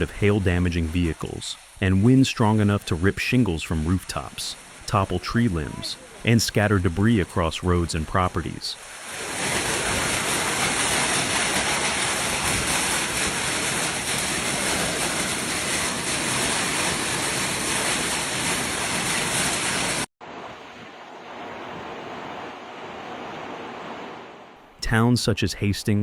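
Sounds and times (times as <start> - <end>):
heavy rain rushing: 0.0 - 20.1
wind: 0.0 - 26.0.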